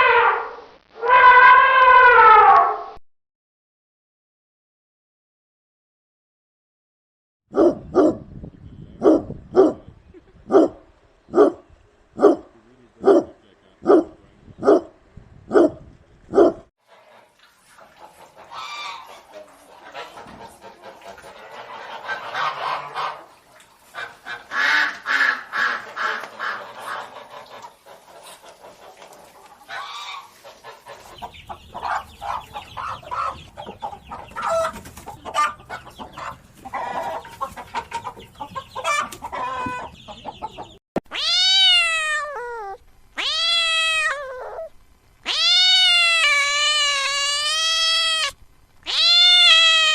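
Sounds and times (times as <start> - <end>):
dog barking: 7.6 - 8.2, 9.0 - 9.8, 10.5 - 11.6, 12.2 - 16.7
chickens clucking: 16.9 - 40.8
fowl honking and calling: 17.9 - 40.8.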